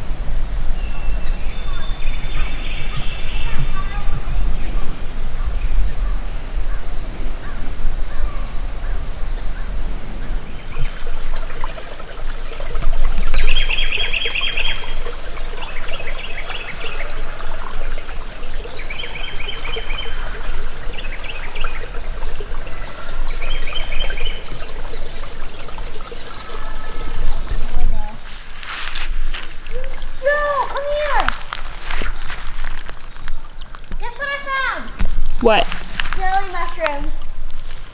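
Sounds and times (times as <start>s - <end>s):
bird singing rapid trills: 0.0s - 28.2s
creek water trickling: 0.0s - 37.9s
small birds chirping: 0.0s - 37.9s.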